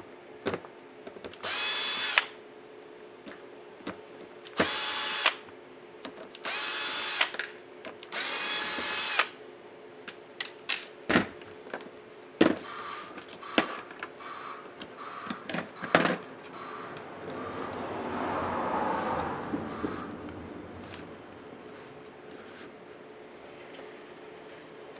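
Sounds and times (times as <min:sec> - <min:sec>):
electric screwdriver whirring: 0:01.4 - 0:02.4, 0:04.6 - 0:05.4, 0:06.4 - 0:07.4, 0:08.1 - 0:09.4
soft scraping rustle: 0:19.4 - 0:23.1.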